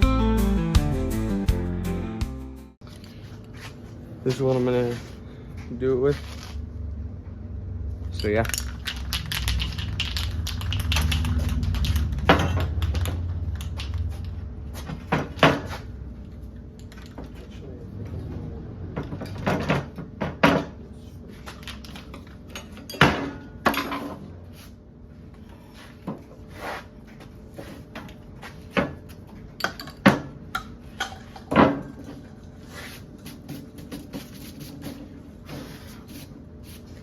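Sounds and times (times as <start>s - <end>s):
hard objects knocking and clattering: 8.3s - 15.8s.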